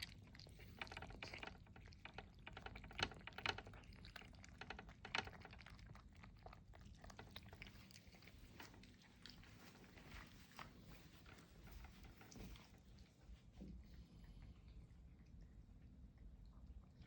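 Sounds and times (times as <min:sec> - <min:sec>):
cat chewing food: 0:00.0 - 0:17.0.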